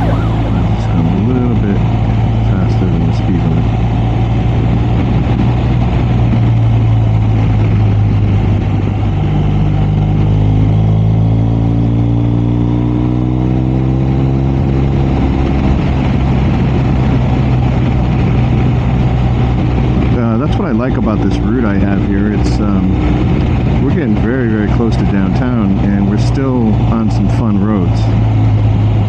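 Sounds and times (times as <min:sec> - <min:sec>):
road noise: 0:00.0 - 0:02.3.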